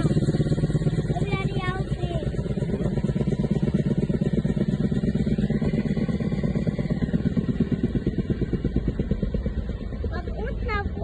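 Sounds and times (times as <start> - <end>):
helicopter engine running: 0.0 - 11.0
helicopter rotor beating: 0.0 - 11.0.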